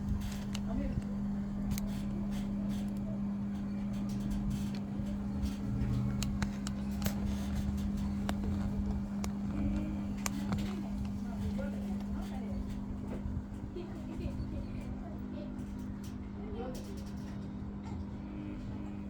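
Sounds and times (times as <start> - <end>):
washing machine spinning: 0.0 - 19.0
light clicks and ticks: 0.1 - 13.3.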